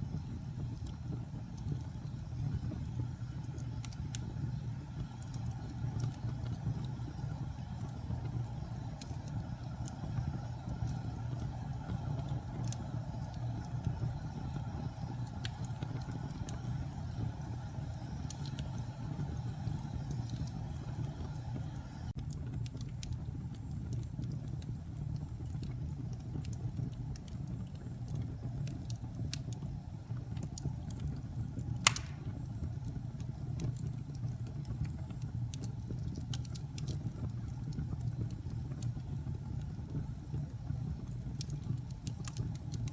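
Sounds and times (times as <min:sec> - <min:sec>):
wood fire burning with crackles: 0:00.0 - 0:42.9
loud pop from fire: 0:31.8 - 0:32.5.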